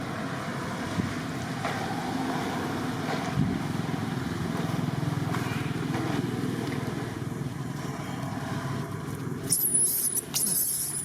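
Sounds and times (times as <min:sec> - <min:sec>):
high-pitched squeals: 0:09.5 - 0:11.0.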